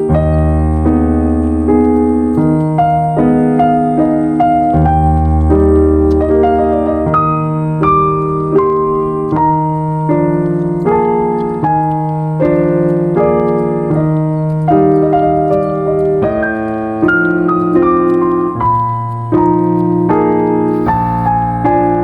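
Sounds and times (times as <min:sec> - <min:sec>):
slow calm piano music: 0:00.0 - 0:22.0.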